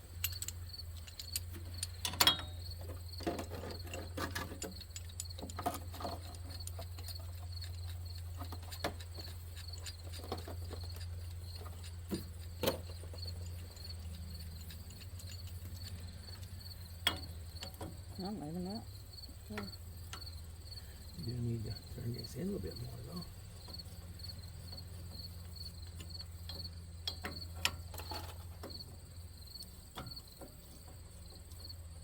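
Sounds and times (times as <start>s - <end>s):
crickets chirping: 0.0s - 32.0s
steady low hum: 0.0s - 32.0s
tools clicking on metal: 0.1s - 18.0s.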